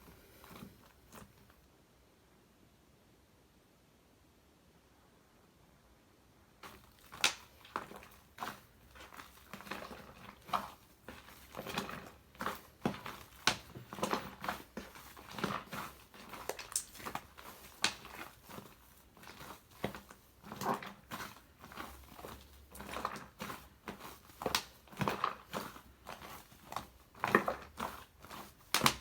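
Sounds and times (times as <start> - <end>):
sticky slime squelches: 6.6 - 29.0
crackling pops: 16.4 - 17.1, 17.8 - 18.1.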